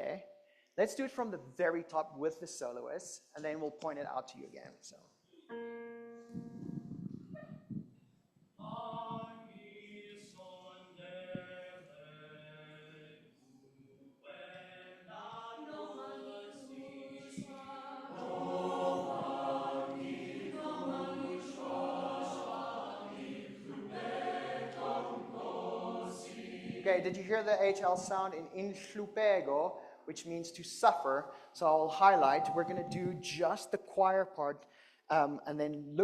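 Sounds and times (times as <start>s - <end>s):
solo voice singing: 8.6s - 10.5s
a cappella choir singing: 8.6s - 13.3s, 14.2s - 28.1s.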